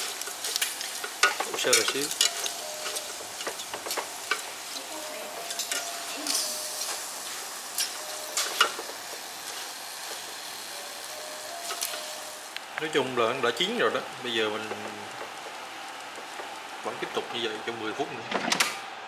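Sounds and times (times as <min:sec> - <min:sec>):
tongs scraping metal basket: 0:00.0 - 0:08.8
pork fat sizzling: 0:00.0 - 0:18.2.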